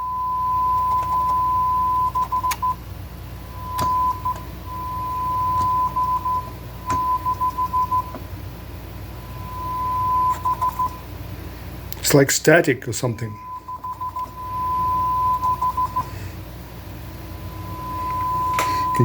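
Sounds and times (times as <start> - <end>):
low hum: 0.0 - 12.0, 13.1 - 19.0
stuttering test tone: 17.4 - 19.0.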